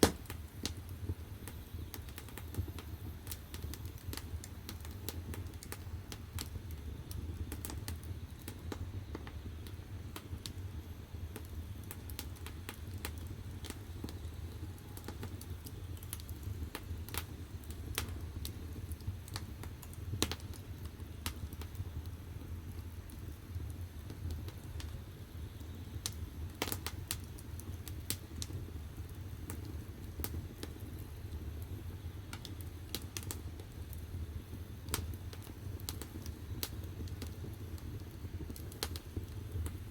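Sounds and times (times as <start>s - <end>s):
burning wood crackling and popping: 0.0s - 39.9s
low rumble of fire: 0.0s - 39.9s.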